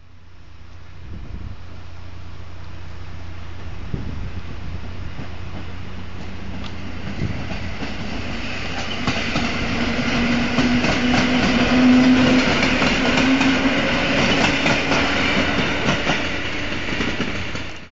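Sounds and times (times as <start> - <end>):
train hum: 0.0 - 17.9
wheels clattering over rail joints: 5.1 - 17.9.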